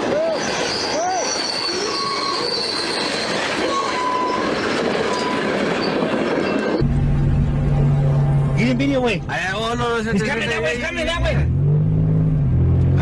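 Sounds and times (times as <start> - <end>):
train wheels squealing on rails: 0.0 - 6.8
train rumble: 0.0 - 11.3.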